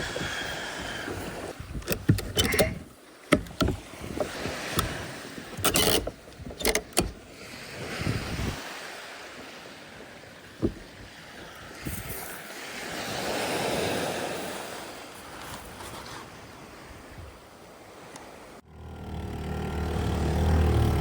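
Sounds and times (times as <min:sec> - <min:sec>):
sea noise: 0:00.0 - 0:21.0
wind: 0:00.0 - 0:21.0
knocks and clatters: 0:01.8 - 0:07.2, 0:10.6 - 0:11.0.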